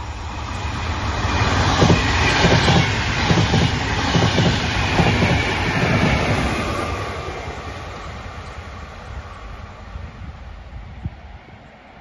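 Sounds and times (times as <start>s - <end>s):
train wheels clattering over rails: 1.4s - 6.9s.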